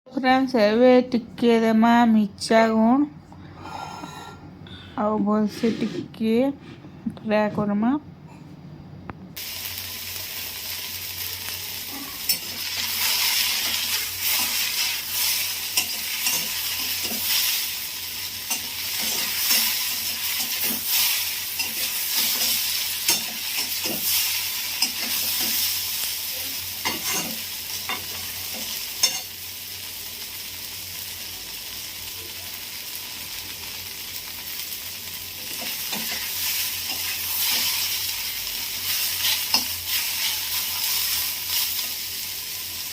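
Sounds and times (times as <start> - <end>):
okra sizzling in oil: 9.4 - 42.9.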